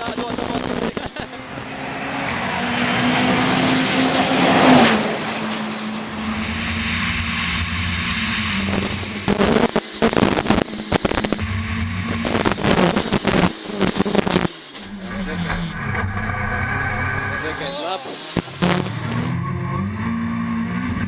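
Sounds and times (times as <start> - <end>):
rally car engine revving: 0.0 - 21.0.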